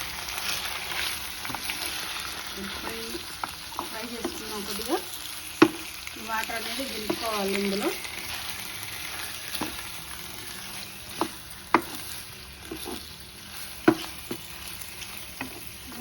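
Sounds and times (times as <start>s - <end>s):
chicken sizzling in oil: 0.0s - 16.0s
spatula knocking against pan: 5.6s - 5.9s, 9.5s - 9.8s, 11.1s - 13.0s, 13.8s - 14.5s.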